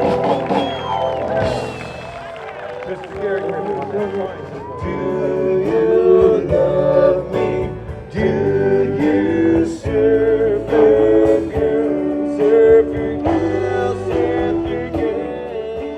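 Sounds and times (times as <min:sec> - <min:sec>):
person singing: 0:02.8 - 0:15.9
strummed electric guitar chords: 0:03.3 - 0:15.9.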